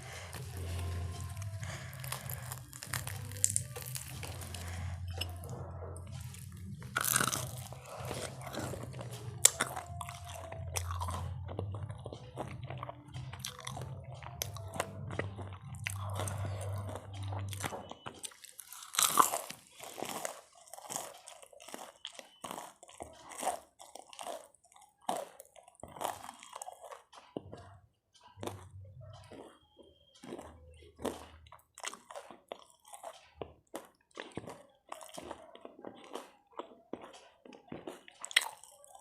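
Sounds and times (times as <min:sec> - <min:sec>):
wet mouth sounds: 0:00.0 - 0:27.7
crunchy bites and chewing: 0:00.0 - 0:39.0.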